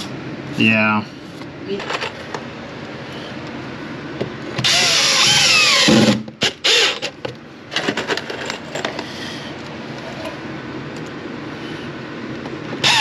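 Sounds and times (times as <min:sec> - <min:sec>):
power drill running: 0:04.6 - 0:07.1.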